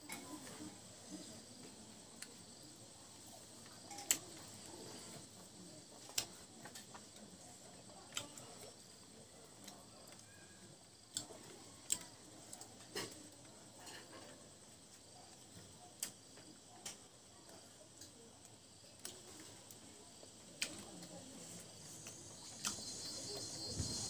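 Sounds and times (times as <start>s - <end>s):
soft wet chewing: 6.0s - 13.6s.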